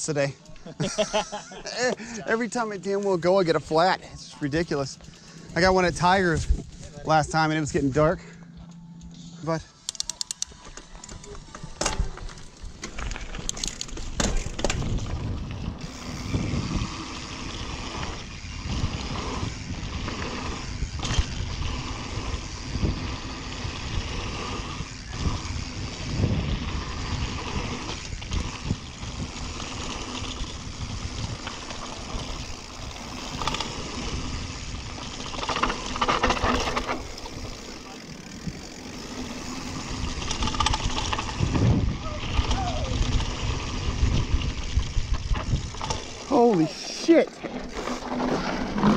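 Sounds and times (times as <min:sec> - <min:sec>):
wind and tyre noise: 0:02.8 - 0:09.5, 0:10.6 - 0:48.9
bike knocking and rattling: 0:09.8 - 0:48.9.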